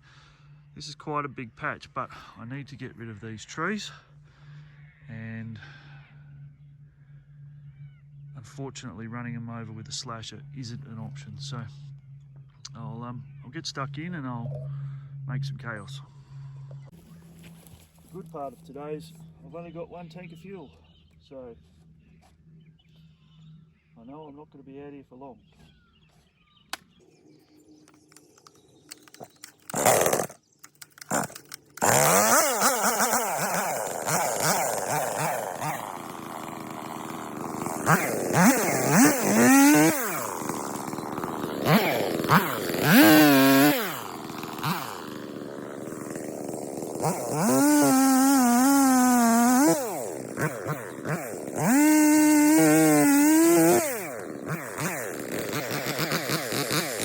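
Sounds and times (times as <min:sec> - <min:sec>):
chainsaw idling and revving: 0:13.6 - 0:19.6, 0:26.7 - 0:57.0
chainsaw starter cord pulls: 0:27.8 - 0:57.0.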